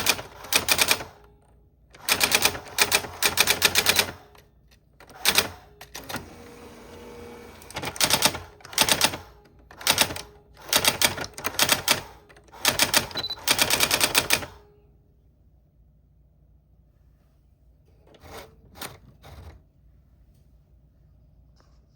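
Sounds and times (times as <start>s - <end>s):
typewriter keystrokes: 0.0s - 1.1s, 2.0s - 4.4s, 5.0s - 6.3s, 7.6s - 14.5s.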